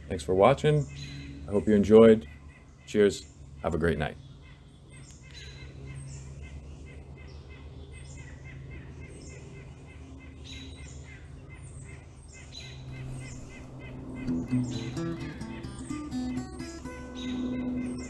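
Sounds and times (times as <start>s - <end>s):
small birds chirping: 0.0s - 18.0s
low steady hum: 12.8s - 18.0s.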